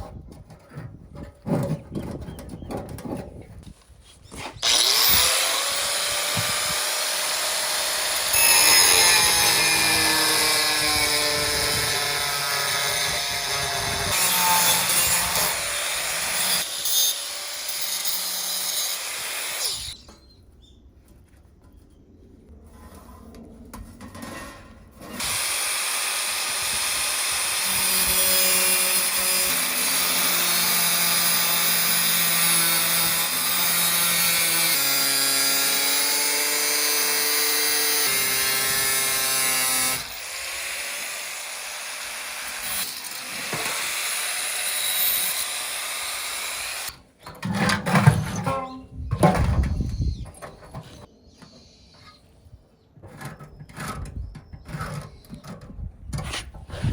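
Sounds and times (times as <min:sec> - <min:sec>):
power tool running: 0:04.6 - 0:20.0, 0:25.1 - 0:47.0.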